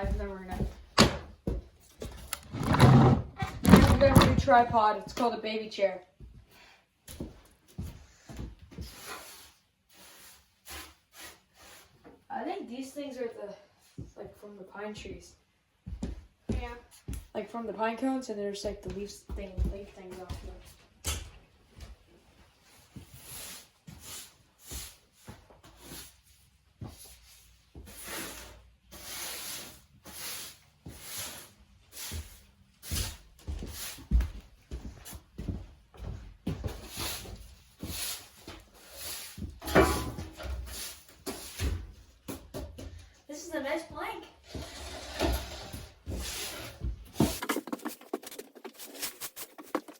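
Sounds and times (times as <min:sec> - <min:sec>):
objects knocked and moved on wood: 0:02.1 - 0:04.8, 0:44.4 - 0:49.9
broom sweeping floor: 0:08.8 - 0:12.2, 0:22.5 - 0:34.4, 0:36.6 - 0:42.5, 0:44.4 - 0:49.9.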